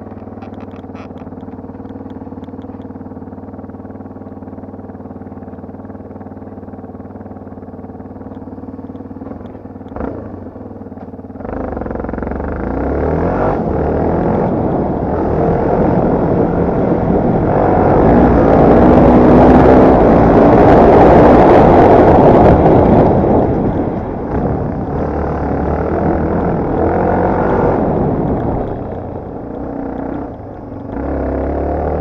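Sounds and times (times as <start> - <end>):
motorcycle engine idling: 0.0 - 12.7, 27.8 - 31.1
motorcycle accelerating: 0.0 - 32.0.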